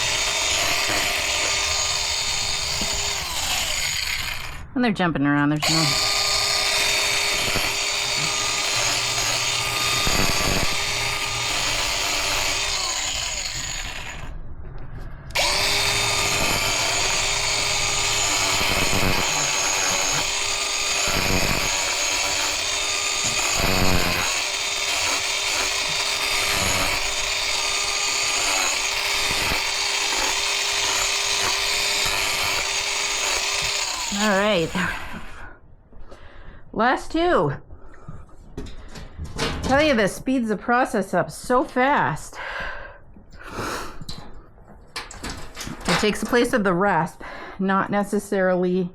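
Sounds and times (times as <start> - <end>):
angle grinder grinding hoof: 0.0 - 4.7, 5.6 - 14.4, 15.2 - 35.5, 45.2 - 47.0.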